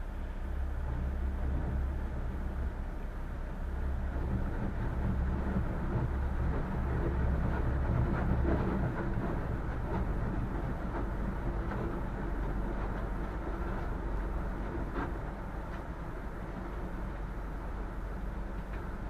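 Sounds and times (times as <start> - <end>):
boat engine rumble: 0.0 - 19.0
hull rushing through water: 0.0 - 19.0.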